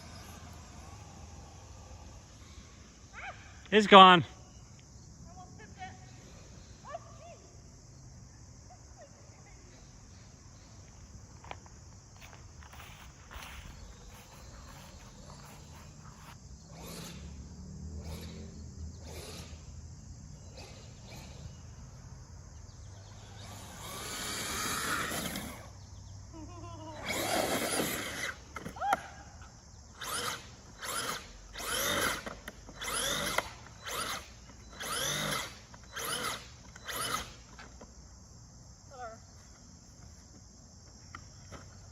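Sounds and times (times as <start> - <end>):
electric motor whining: 0.0 - 3.1, 12.8 - 22.0, 22.8 - 25.8, 27.0 - 28.8, 29.9 - 37.6.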